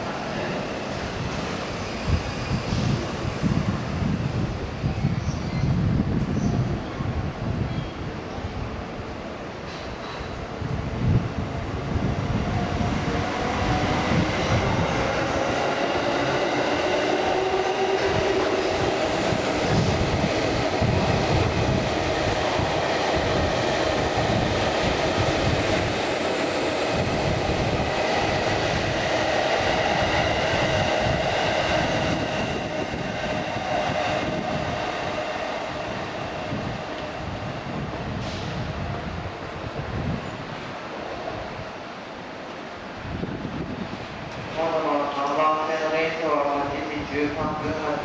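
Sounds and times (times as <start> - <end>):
train humming tone: 6.4 - 48.0
train wheels clattering on rails: 9.6 - 10.4.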